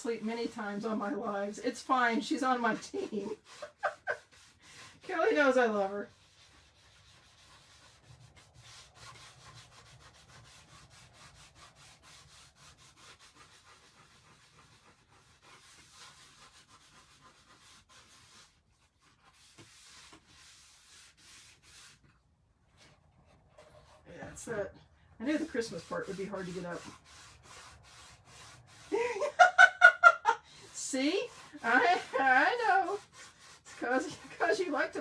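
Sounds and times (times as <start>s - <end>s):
paper towels rubbing a board: 0.0s - 35.0s.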